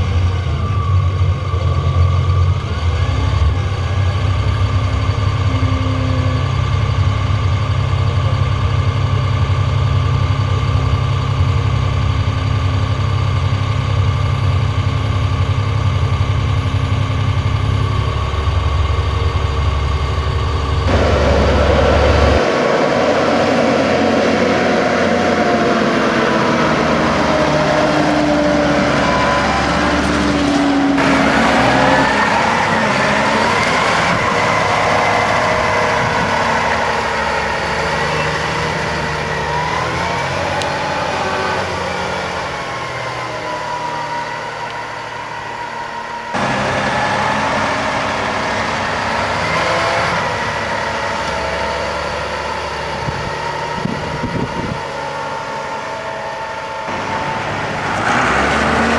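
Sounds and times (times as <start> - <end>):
tractor diesel engine under load: 0.0 - 58.9.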